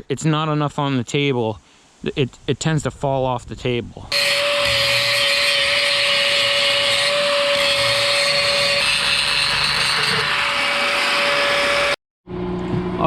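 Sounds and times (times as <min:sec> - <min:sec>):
angle grinder grinding steel: 0:04.1 - 0:12.0.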